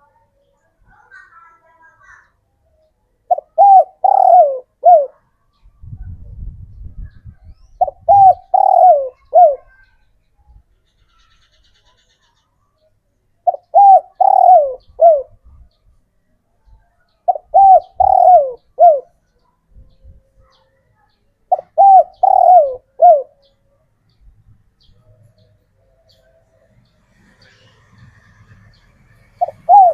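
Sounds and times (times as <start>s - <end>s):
dove cooing: 3.3s - 5.3s, 7.8s - 9.8s, 13.4s - 15.4s, 17.3s - 19.2s, 21.5s - 23.5s, 29.3s - 29.9s.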